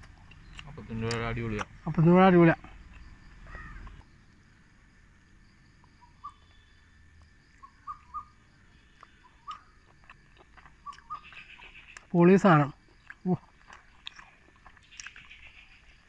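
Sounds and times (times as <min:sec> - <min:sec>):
faint bird chirps: 0:03.0 - 0:04.7, 0:05.8 - 0:12.2, 0:13.9 - 0:16.0.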